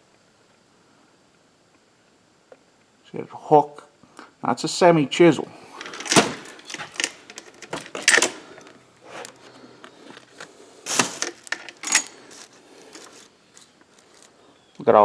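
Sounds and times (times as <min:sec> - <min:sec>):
saw chain links rattling: 0:05.8 - 0:08.6, 0:10.9 - 0:14.3.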